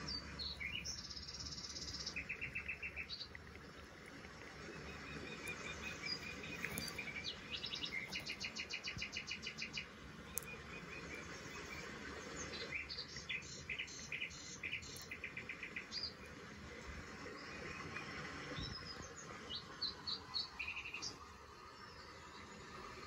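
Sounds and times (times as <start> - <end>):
birds chirping and trilling: 0.0 - 16.4, 17.0 - 22.6
faint steady background hiss: 0.0 - 23.0.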